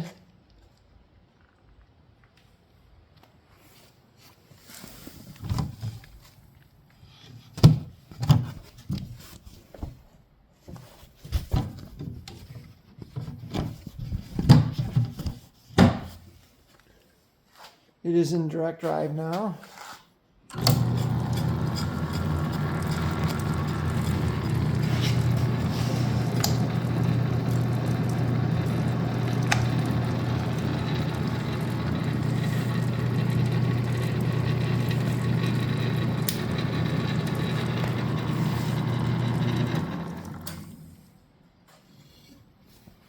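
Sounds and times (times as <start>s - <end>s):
metal lathe humming: 20.5s - 40.6s.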